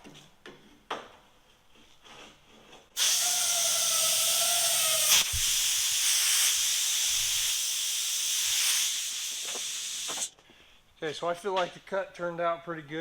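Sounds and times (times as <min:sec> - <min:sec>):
whistle-like tone: 0:03.0 - 0:10.2
plasma cutter hissing: 0:03.0 - 0:10.3.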